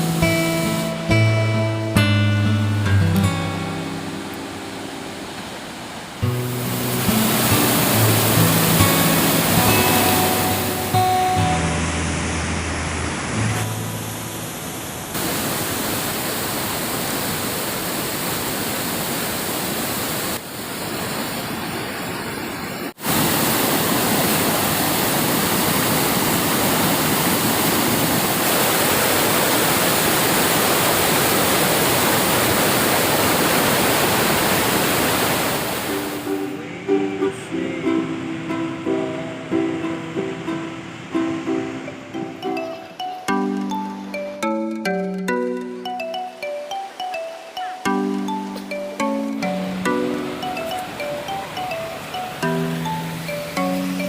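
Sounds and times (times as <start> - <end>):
plucked string music: 0.0 - 5.6, 6.2 - 15.1, 35.9 - 54.0
waterfall rushing: 0.0 - 54.0.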